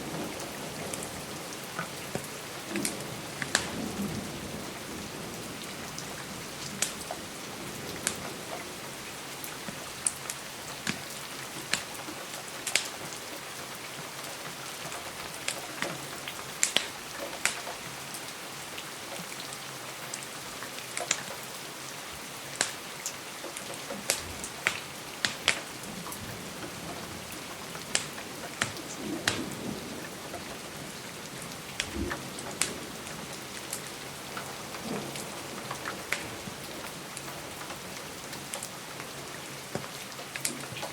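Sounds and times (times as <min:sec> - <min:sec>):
steady rain falling: 0:00.0 - 0:40.9
wood fire crackling and popping: 0:01.8 - 0:03.8, 0:06.8 - 0:07.1, 0:09.6 - 0:12.0, 0:12.6 - 0:13.0, 0:16.6 - 0:17.7, 0:22.6 - 0:22.9, 0:23.5 - 0:27.2, 0:27.8 - 0:31.0, 0:31.6 - 0:38.7.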